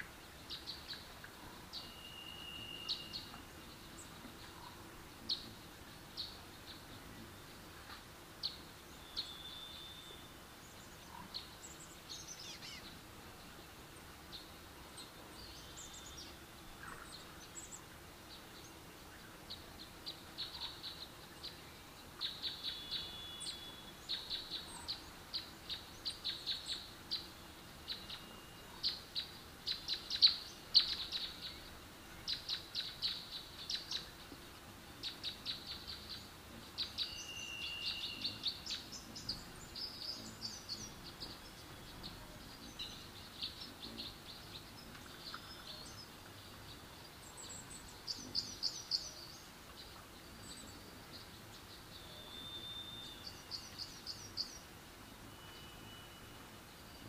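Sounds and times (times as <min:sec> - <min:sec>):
small birds chirping: 0:00.0 - 0:57.0
whistled bird note: 0:01.8 - 0:03.4, 0:52.0 - 0:53.8, 0:55.3 - 0:56.5.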